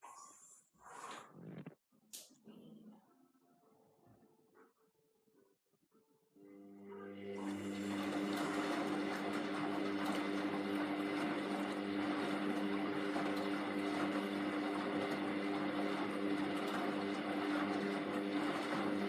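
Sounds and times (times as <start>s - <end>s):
washing machine motor hum: 6.4s - 19.0s.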